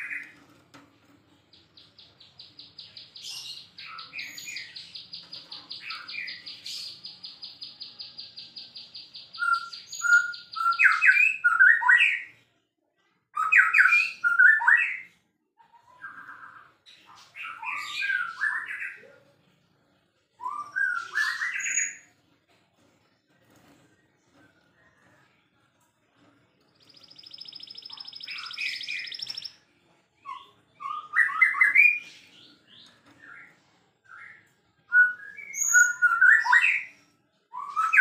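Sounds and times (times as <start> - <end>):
bird whistled phrases: 27.1 - 29.6, 34.9 - 36.9.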